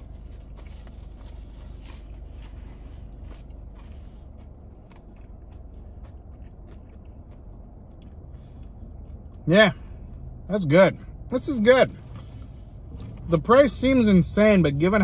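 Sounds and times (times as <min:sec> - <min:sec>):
person chewing crunchy food: 0:00.0 - 0:10.5
low hum: 0:00.0 - 0:13.9.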